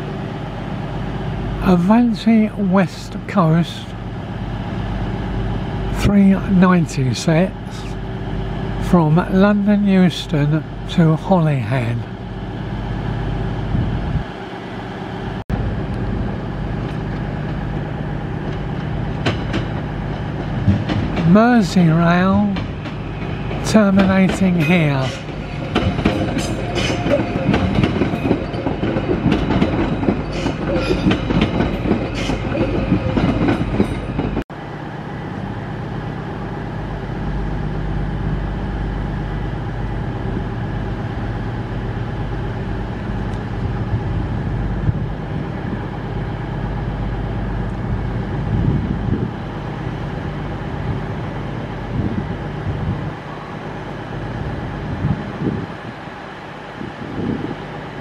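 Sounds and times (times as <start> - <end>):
electric train running past: 0.0 - 58.0
wheels clicking over rail joints: 16.8 - 34.4.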